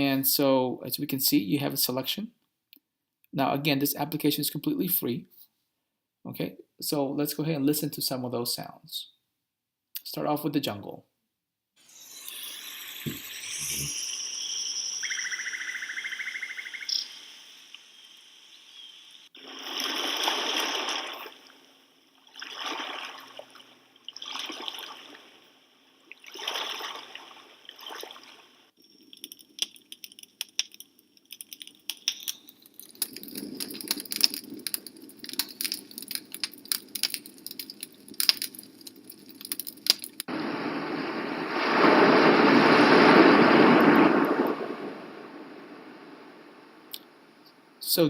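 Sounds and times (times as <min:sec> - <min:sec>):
crackling clicks: 0:28.8 - 0:40.3
swells of rushing noise: 0:40.3 - 0:46.7.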